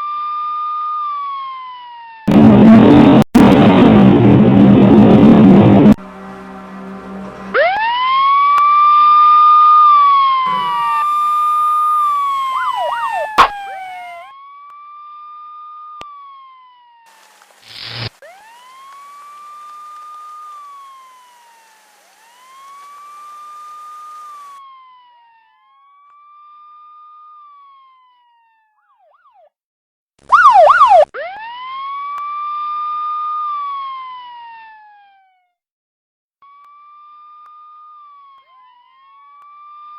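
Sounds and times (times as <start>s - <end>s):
police siren wailing: 0.0s - 2.4s, 4.8s - 29.6s, 30.3s - 35.5s, 36.4s - 39.9s
siren fast warble: 7.5s - 29.5s, 30.2s - 35.4s, 36.4s - 39.9s.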